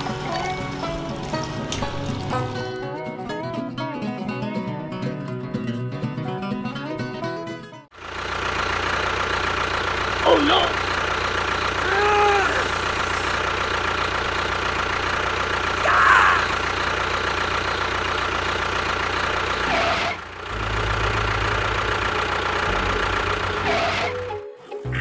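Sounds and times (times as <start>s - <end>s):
engine humming: 0.0s - 5.5s, 7.2s - 25.0s.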